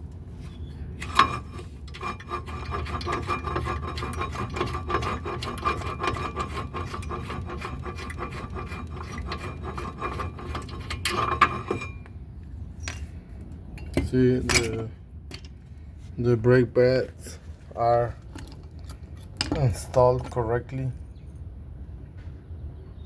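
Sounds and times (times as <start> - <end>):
metal clatter: 1.0 - 12.1, 13.8 - 15.6.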